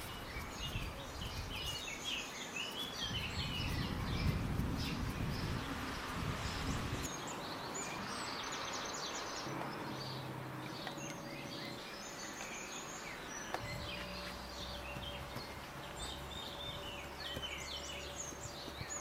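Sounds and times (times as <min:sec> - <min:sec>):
outdoor background hiss: 0:00.0 - 0:19.0
songbirds chirping and singing: 0:00.0 - 0:19.0.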